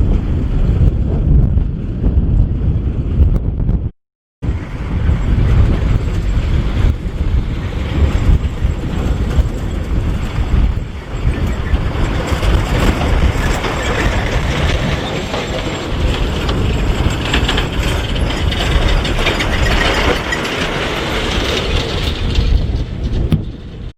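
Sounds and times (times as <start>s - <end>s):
tractor diesel engine running: 4.4s - 23.9s
metallic rattling and clanking: 5.1s - 23.9s.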